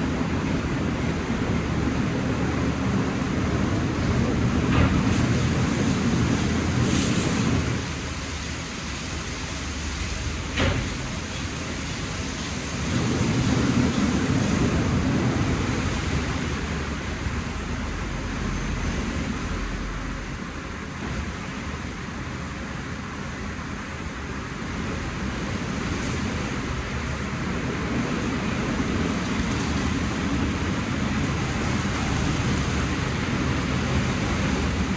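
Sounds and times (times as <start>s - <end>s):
car wash brushes and water spray: 3.0s - 18.5s.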